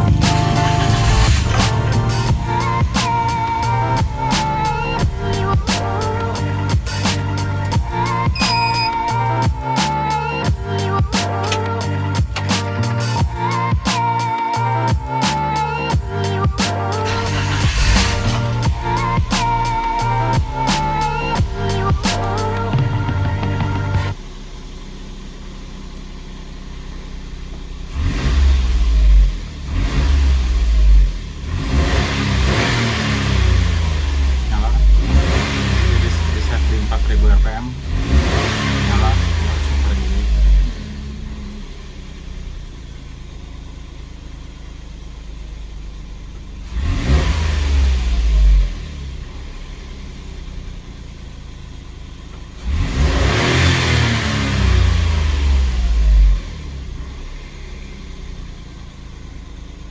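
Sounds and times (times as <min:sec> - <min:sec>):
small truck engine idling and revving: 0:00.0 - 0:59.9.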